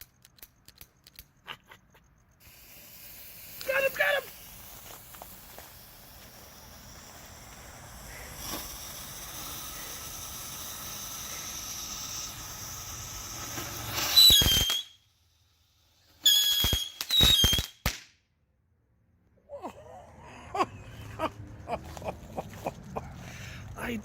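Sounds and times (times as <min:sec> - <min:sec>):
sharp firework pops with whistles: 0:02.4 - 0:15.3, 0:15.9 - 0:18.2
fireworks fountain hissing: 0:02.4 - 0:18.0
firework crack with falling whistle: 0:02.4 - 0:18.1.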